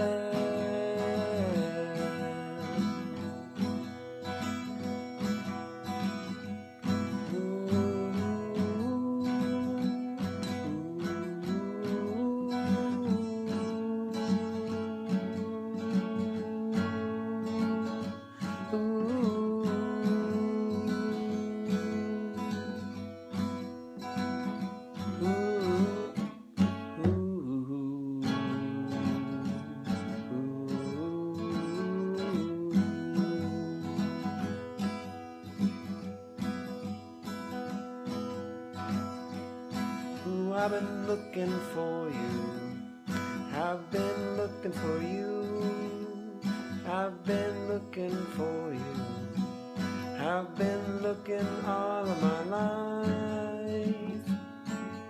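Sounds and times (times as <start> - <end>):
acoustic guitar strummed and picked: 0.0 - 55.0.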